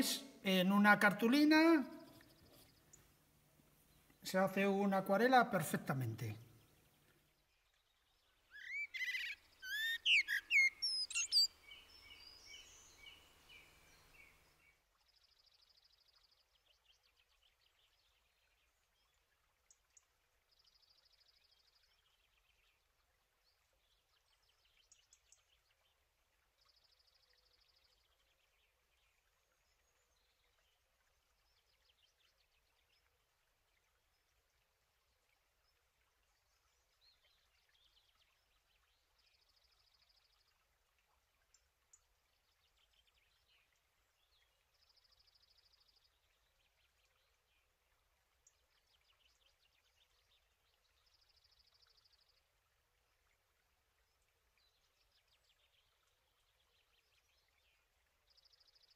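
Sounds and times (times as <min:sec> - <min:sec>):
bird trills: 0:08.5 - 0:12.7
birds whistling: 0:08.6 - 0:11.5.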